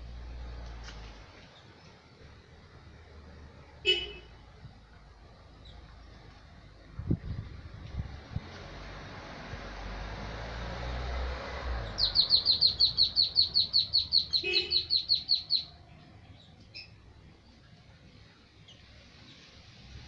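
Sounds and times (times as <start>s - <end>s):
low rushing microphone noise: 4.4s - 12.9s
bird calling sharp high notes: 12.0s - 15.7s.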